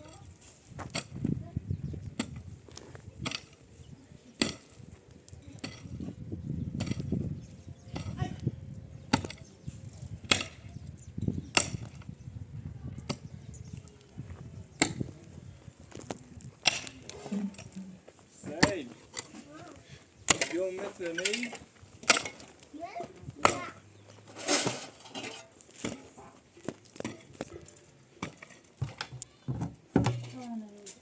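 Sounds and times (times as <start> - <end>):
hand tool striking something hard: 10.3 - 10.7.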